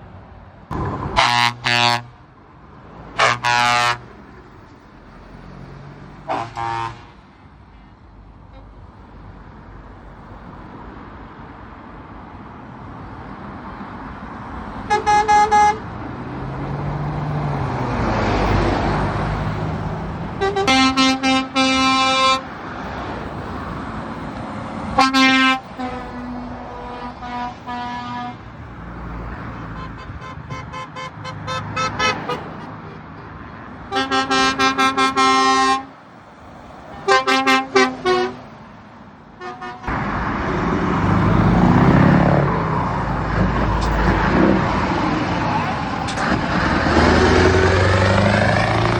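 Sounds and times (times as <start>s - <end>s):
truck engine passing: 0.7s - 7.4s, 12.9s - 48.9s
truck horns blasting: 1.0s - 2.3s, 3.1s - 4.2s, 6.2s - 7.2s, 14.8s - 15.9s, 20.3s - 22.5s, 24.9s - 28.5s, 29.6s - 33.3s, 33.9s - 36.0s, 36.9s - 38.5s, 39.4s - 40.1s.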